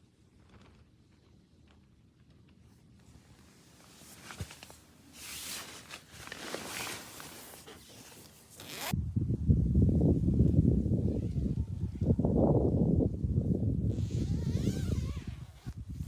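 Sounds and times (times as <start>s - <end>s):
zipper rasping: 4.0s - 9.0s, 13.9s - 15.8s.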